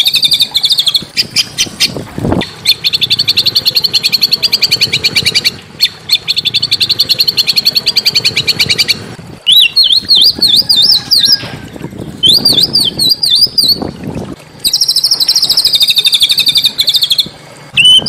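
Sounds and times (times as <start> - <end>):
songbird fast harsh trill: 0.0 - 11.4, 14.6 - 18.0.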